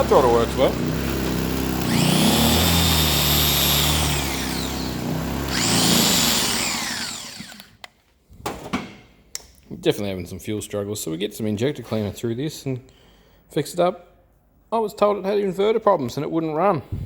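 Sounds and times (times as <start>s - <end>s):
generator engine surging: 0.0s - 7.6s.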